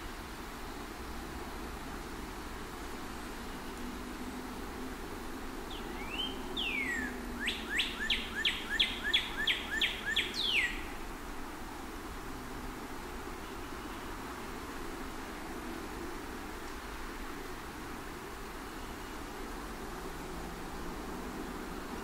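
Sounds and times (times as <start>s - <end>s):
songbird singing: 2.4s - 11.6s, 13.0s - 15.0s, 18.6s - 22.0s.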